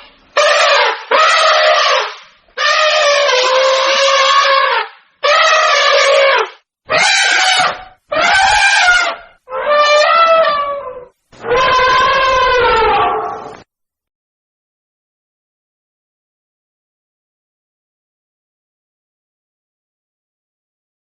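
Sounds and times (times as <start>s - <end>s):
hippopotamus honking calls: 0.4s - 10.8s, 11.4s - 13.6s.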